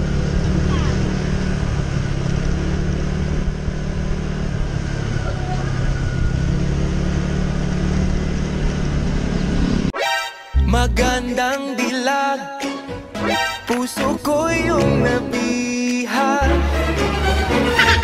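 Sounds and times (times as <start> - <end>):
motorcycle engine running: 0.0 - 9.9.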